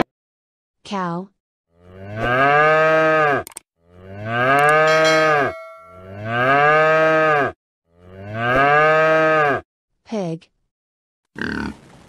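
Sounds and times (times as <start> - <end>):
cow mooing: 1.7 - 9.6.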